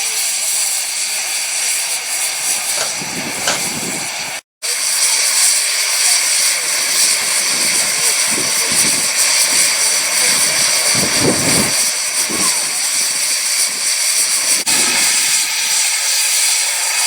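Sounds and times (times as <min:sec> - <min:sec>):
steam hissing from locomotive: 0:00.0 - 0:17.0
faint voices: 0:01.3 - 0:04.4.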